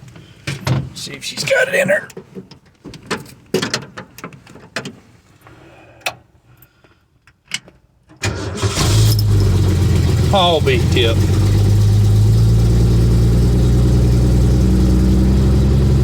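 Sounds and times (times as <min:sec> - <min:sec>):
car engine starting and running: 0:08.2 - 0:16.0.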